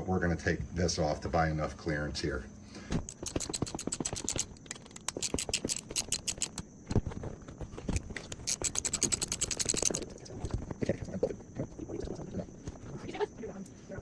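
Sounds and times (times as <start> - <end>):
ratchet wrench clicking: 3.1 - 6.6, 8.3 - 10.0.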